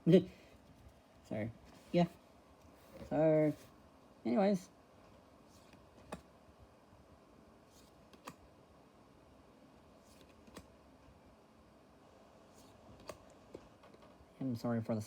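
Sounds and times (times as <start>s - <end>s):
card swishing: 10.0s - 10.7s
cards clicking down: 10.1s - 10.7s, 12.6s - 14.1s.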